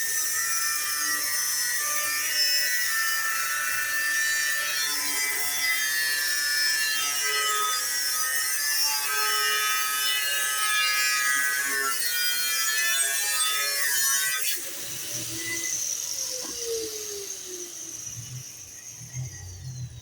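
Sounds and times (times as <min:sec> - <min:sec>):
motor winding down: 0:14.4 - 0:20.0.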